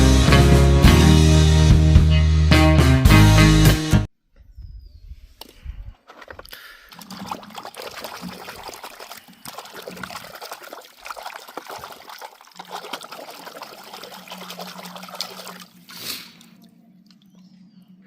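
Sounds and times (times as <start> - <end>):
water running and trickling: 6.9 - 17.4.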